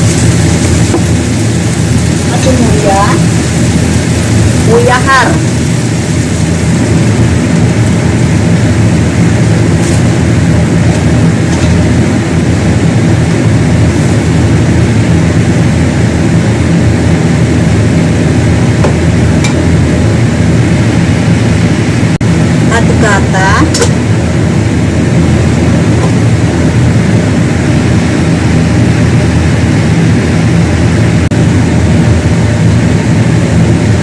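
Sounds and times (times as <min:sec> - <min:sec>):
steady mechanical hum: 0:00.0 - 0:34.0.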